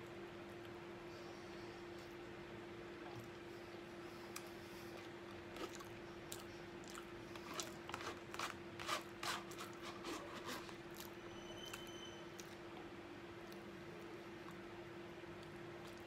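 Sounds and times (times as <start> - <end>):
man chewing with wet mouth clicks: 4.3 - 8.1, 15.3 - 16.0.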